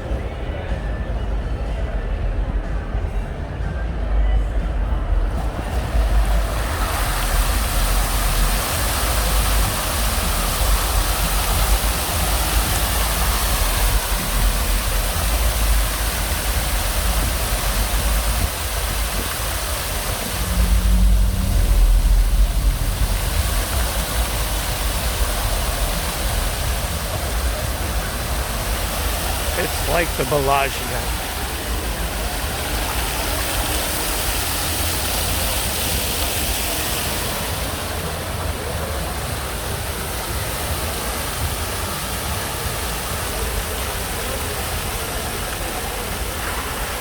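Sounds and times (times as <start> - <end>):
fountain jets splashing: 1.3 - 47.0
low rumble: 16.6 - 29.5.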